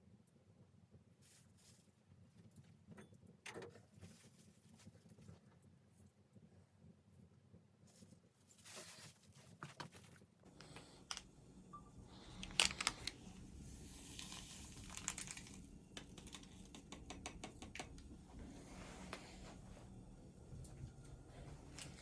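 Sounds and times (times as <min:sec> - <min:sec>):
handling clicks and crinkling: 0:12.3 - 0:13.4, 0:14.1 - 0:18.1.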